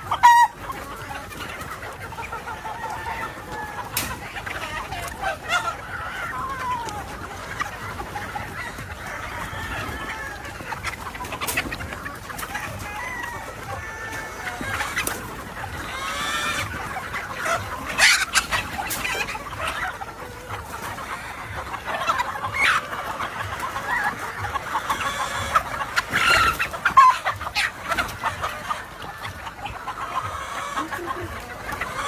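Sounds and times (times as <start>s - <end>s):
chickens clucking and calling: 0.0s - 32.0s
roosters crowing: 2.5s - 4.2s, 8.3s - 10.9s, 12.3s - 16.9s.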